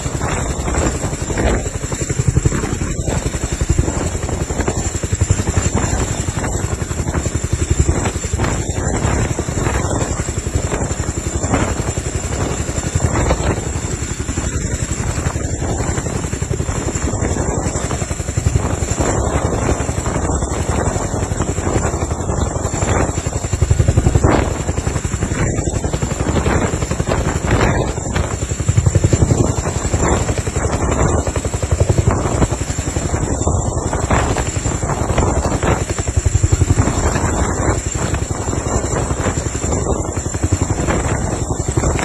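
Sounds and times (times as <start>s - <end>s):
helicopter high whine: 0.0s - 42.0s
helicopter rotor chopping: 0.0s - 42.0s.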